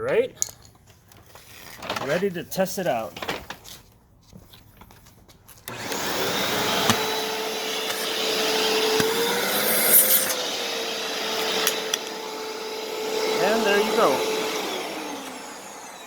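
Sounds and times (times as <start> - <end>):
vacuum cleaner running: 5.7 - 16.0
hiss of air: 9.2 - 10.4.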